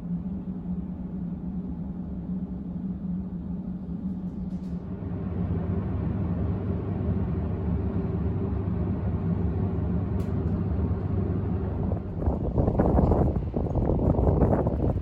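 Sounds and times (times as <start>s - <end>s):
electric train rumbling: 3.4s - 15.0s.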